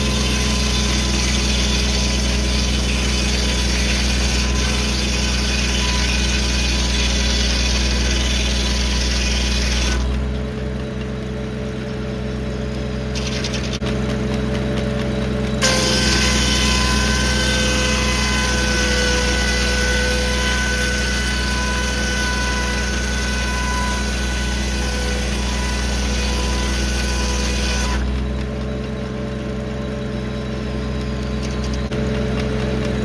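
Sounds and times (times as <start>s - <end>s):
saw blade cutting through log: 0.0s - 10.3s, 13.1s - 28.4s
tractor engine running: 0.0s - 19.3s, 21.2s - 33.0s.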